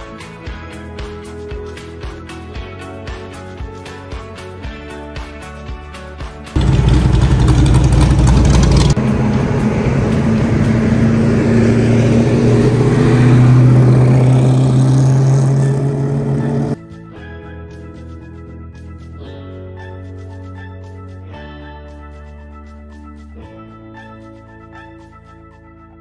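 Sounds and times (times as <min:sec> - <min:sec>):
car engine accelerating: 0:06.6 - 0:16.8.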